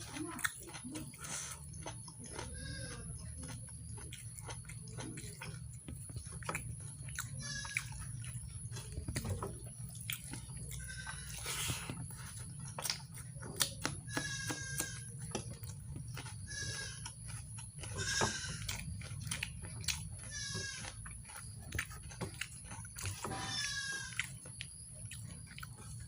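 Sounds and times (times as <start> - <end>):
chewing and mouth clicks: 0.0 - 26.0
goat bleating: 2.4 - 3.7, 7.2 - 8.2, 10.6 - 11.6, 14.0 - 15.2, 16.3 - 18.8, 20.2 - 21.2, 23.2 - 24.3.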